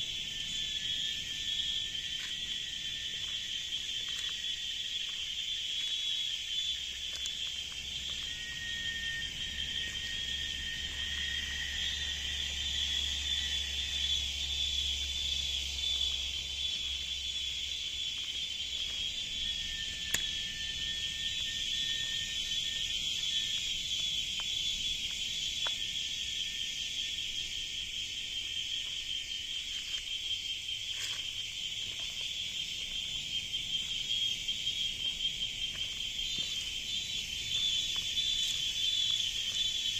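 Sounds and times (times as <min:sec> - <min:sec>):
cicadas droning: 0:00.0 - 0:39.9
thin whistling tones: 0:07.9 - 0:14.9, 0:19.1 - 0:25.0.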